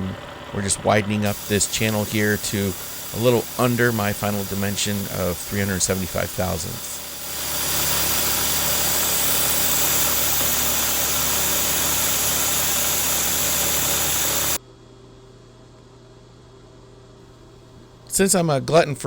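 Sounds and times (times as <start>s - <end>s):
milling machine grinding steel: 0.0s - 14.6s.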